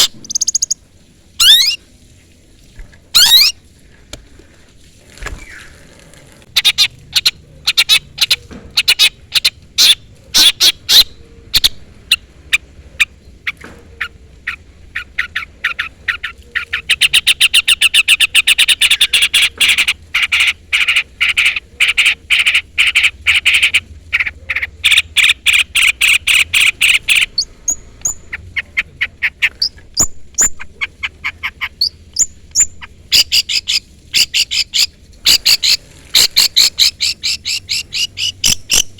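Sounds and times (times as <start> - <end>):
fast bird chatter: 0.0 - 0.8, 14.5 - 38.9
shrike calling in sharp chirps: 0.0 - 0.8, 1.4 - 1.8, 3.2 - 3.6, 8.9 - 38.9
thin rising whistles: 1.4 - 1.8.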